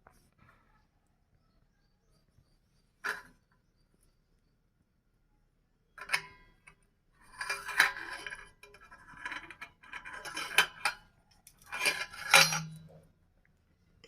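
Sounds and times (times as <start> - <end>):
metallic clinking and rattling: 7.3 - 13.1.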